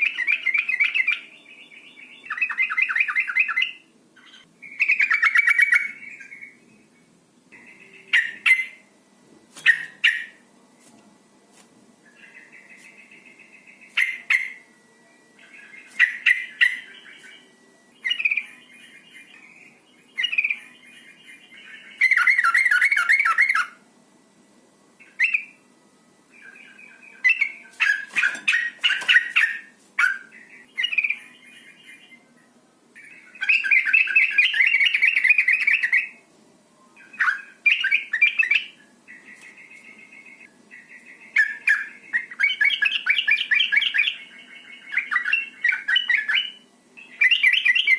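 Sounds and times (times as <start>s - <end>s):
bird chattering calls: 9.6s - 10.4s.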